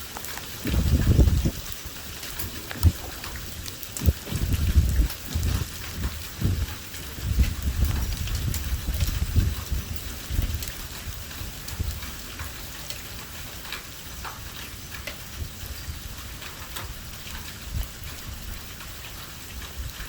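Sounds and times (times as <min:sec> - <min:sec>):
low thunder rumbling: 0:00.0 - 0:12.3
heavy rain pouring: 0:00.0 - 0:20.0
raindrops tapping on surfaces: 0:00.0 - 0:20.0.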